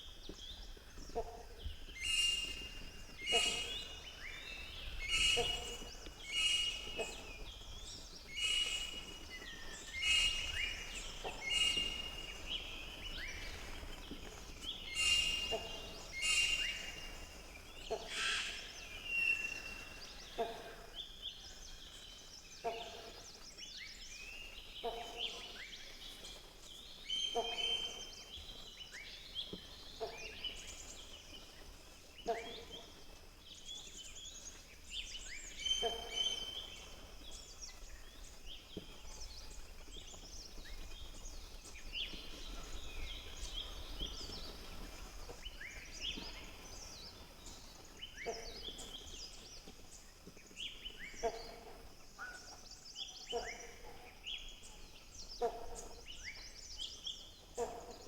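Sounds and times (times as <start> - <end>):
birds chirping in chorus: 1.8 - 13.8, 14.4 - 23.0.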